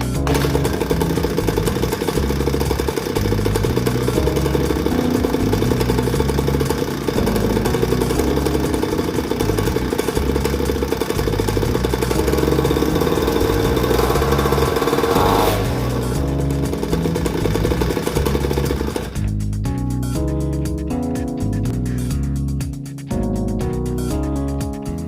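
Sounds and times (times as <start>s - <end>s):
small engine running: 0.0s - 19.6s.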